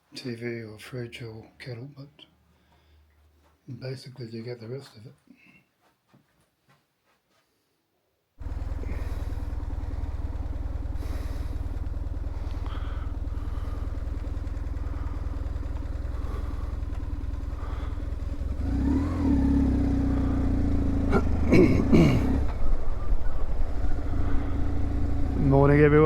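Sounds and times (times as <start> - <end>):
motorcycle engine running: 8.4 - 26.0.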